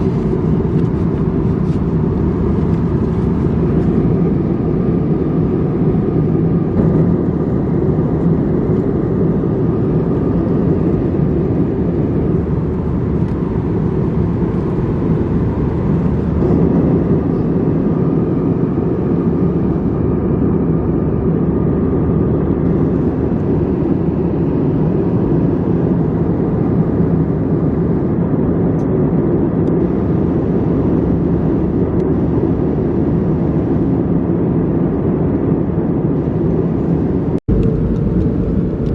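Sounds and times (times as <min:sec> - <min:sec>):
airliner cabin noise: 0:00.0 - 0:38.9.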